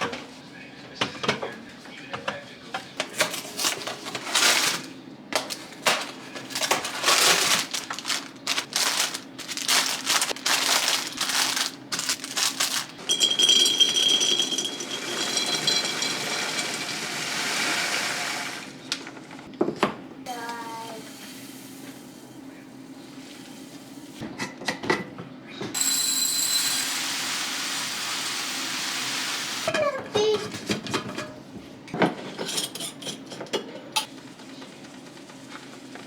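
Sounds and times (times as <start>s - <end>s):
rustling and scraping: 3.0s - 13.0s
plastic and glass items clattering: 3.1s - 16.6s.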